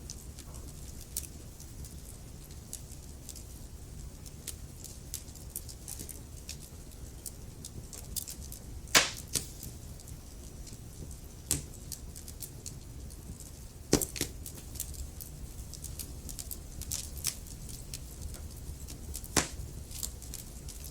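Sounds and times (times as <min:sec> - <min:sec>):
low rumble of flames: 0:00.0 - 0:20.9
logs crackling: 0:08.9 - 0:09.7, 0:15.7 - 0:20.9
sharp pops from fire: 0:08.9 - 0:09.8, 0:10.6 - 0:20.9.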